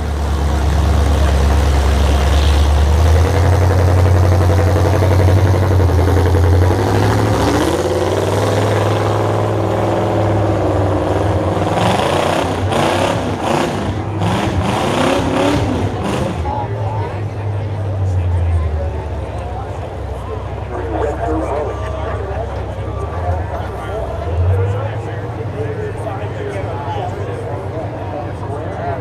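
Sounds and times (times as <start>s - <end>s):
truck engines revving: 0.0s - 29.0s.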